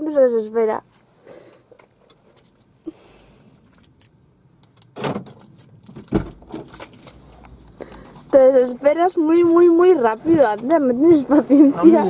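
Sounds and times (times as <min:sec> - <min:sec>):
car keys jangling: 0:02.3 - 0:02.7, 0:03.4 - 0:07.5.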